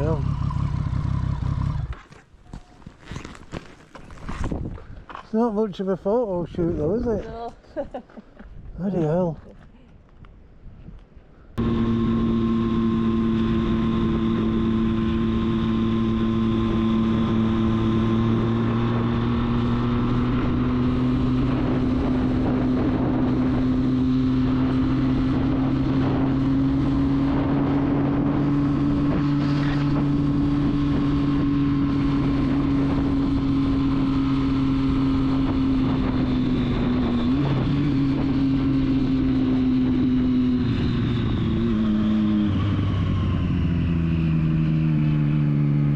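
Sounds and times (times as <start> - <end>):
motorcycle engine cruising: 0.0 - 4.6, 11.6 - 45.9.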